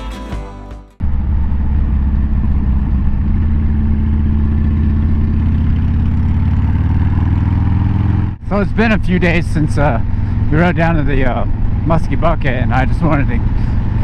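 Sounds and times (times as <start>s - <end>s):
background music: 0.0s - 1.0s
motorcycle engine idling: 1.0s - 14.0s.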